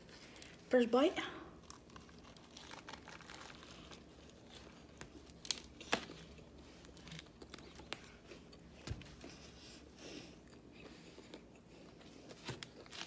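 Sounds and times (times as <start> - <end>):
tortilla crinkling: 1.6 - 9.8, 11.2 - 13.0
person chewing food: 1.6 - 13.0.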